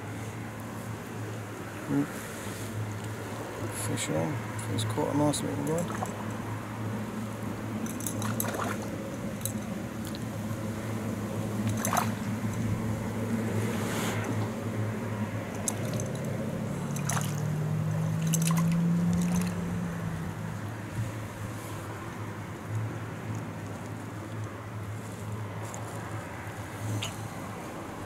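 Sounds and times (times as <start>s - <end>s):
water splashing and dripping: 5.6s - 6.4s, 7.8s - 10.3s, 11.6s - 12.6s, 15.5s - 19.6s.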